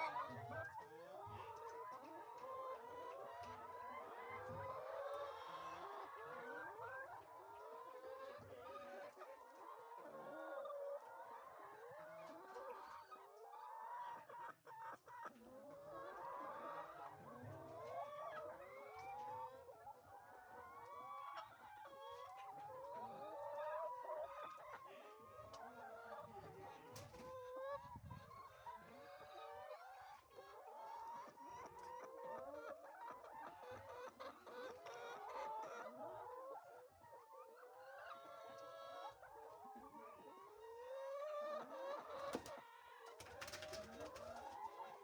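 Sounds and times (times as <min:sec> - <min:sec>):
hens clucking: 0:00.0 - 0:45.0.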